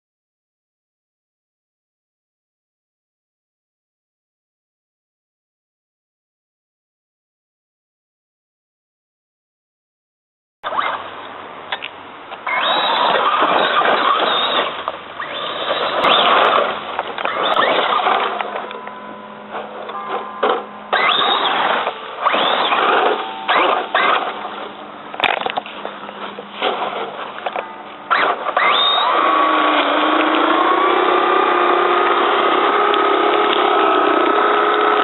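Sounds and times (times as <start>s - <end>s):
rc truck electric motor whining: 10.6s - 11.1s, 12.4s - 18.8s, 19.8s - 35.0s
tyres on dirt and rocks: 10.6s - 35.0s.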